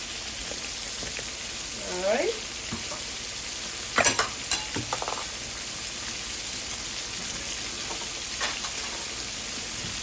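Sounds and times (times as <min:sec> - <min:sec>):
fish sizzling in hot oil: 0:00.0 - 0:10.0.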